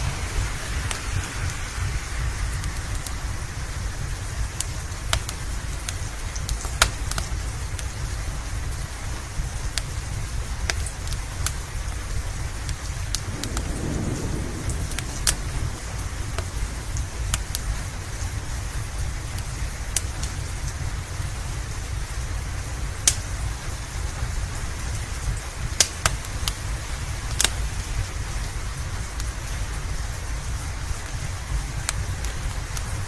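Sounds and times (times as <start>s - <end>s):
steady rain: 0.0s - 33.0s
wood fire crackling and popping: 0.8s - 33.0s
low rumble: 12.4s - 25.8s.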